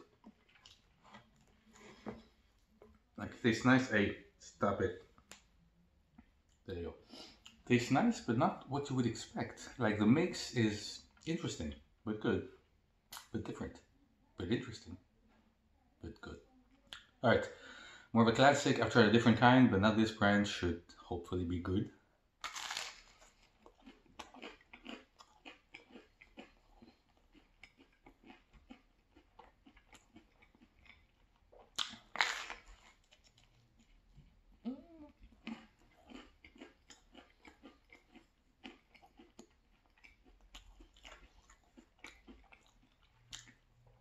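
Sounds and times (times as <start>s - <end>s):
chewing pizza: 0.0s - 3.2s, 22.4s - 44.0s
crunching bite: 22.4s - 33.9s, 35.3s - 43.6s.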